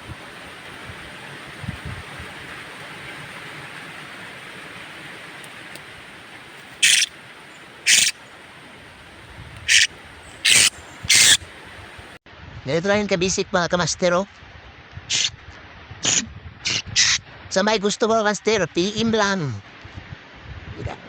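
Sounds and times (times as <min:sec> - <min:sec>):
steady hiss: 0:00.0 - 0:12.2
parrot shrill calls: 0:06.8 - 0:08.3, 0:09.7 - 0:11.5.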